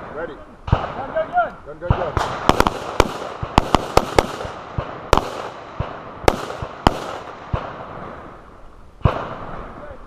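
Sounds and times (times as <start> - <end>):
gunshots with echo: 1.8 - 8.2.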